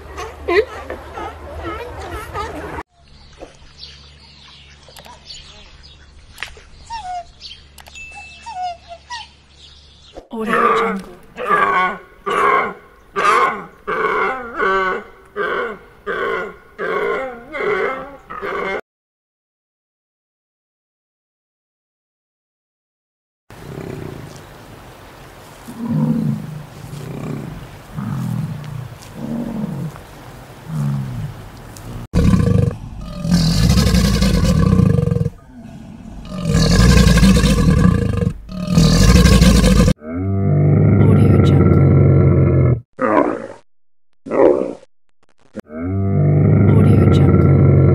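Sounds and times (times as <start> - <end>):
deer groaning calls: 32.1 - 40.2
alligators bellowing: 32.1 - 43.3.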